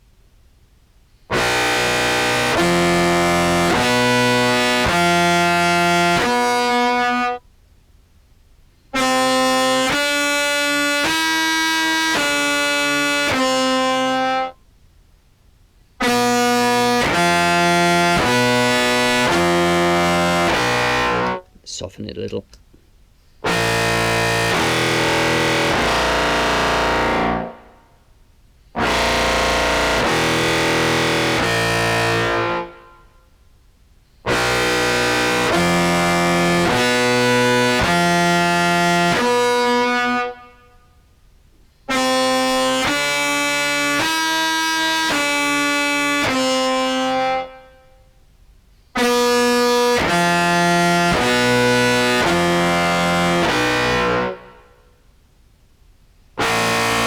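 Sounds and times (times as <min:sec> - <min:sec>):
distorted contrabass clarinet: 0:01.3 - 0:07.4, 0:09.0 - 0:14.6, 0:16.0 - 0:21.5, 0:23.4 - 0:27.8, 0:28.8 - 0:32.9, 0:34.3 - 0:40.6, 0:41.9 - 0:47.7, 0:49.0 - 0:54.7, 0:56.4 - 0:57.0.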